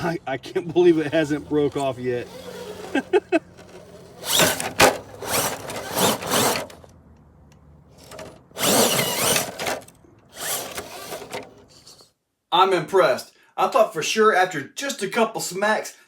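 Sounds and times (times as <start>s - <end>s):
electric motor whirring: 0.6s - 6.9s, 7.9s - 11.8s.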